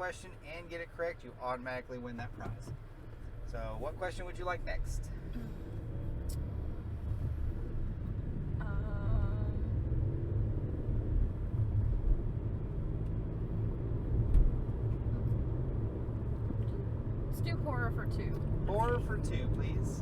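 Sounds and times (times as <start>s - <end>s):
car road and engine rumble: 0.0s - 20.0s
light thumps from road bumps: 0.0s - 20.0s.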